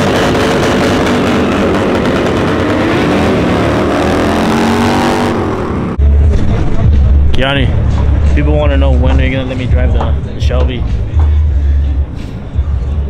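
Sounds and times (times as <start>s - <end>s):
car engine at high revs: 0.0s - 6.2s.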